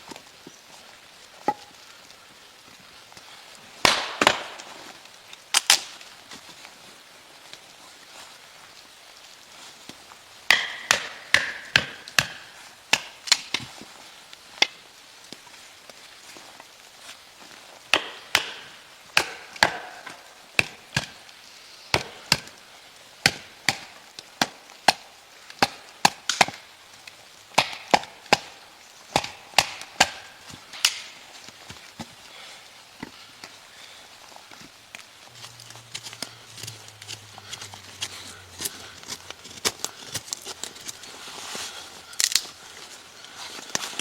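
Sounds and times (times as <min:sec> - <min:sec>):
axe chopping wood: 0:03.8 - 0:04.7, 0:10.5 - 0:13.6, 0:17.9 - 0:21.2, 0:21.9 - 0:22.6, 0:23.2 - 0:25.0, 0:25.6 - 0:26.6, 0:27.6 - 0:31.2.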